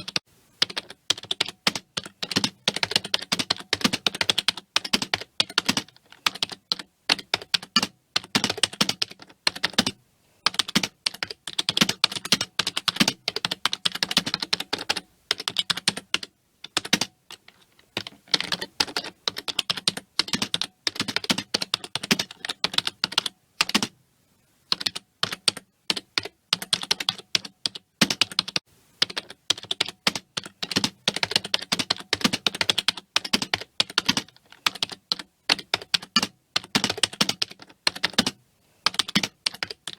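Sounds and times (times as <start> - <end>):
fast typing on computer keyboard: 0.0 - 23.9, 24.7 - 39.9.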